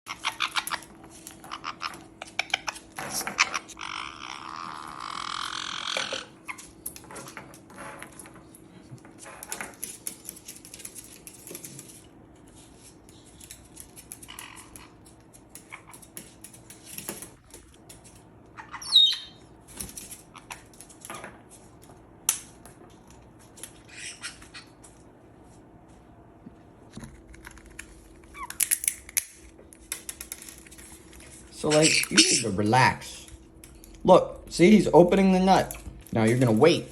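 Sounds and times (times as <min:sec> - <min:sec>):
parrots squawking and chirping: 0:00.1 - 0:06.9, 0:14.0 - 0:16.1, 0:18.4 - 0:19.5, 0:23.7 - 0:24.8, 0:28.3 - 0:29.0, 0:31.5 - 0:33.2.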